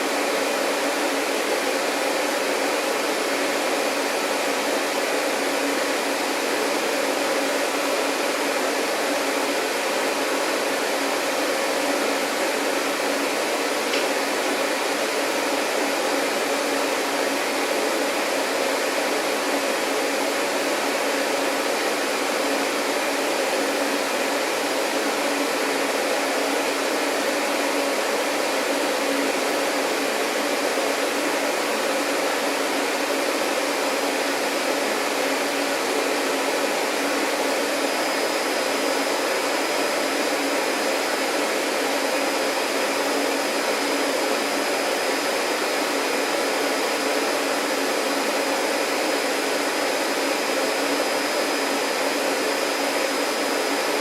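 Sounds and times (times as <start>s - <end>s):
vacuum cleaner motor running: 0.0s - 54.0s.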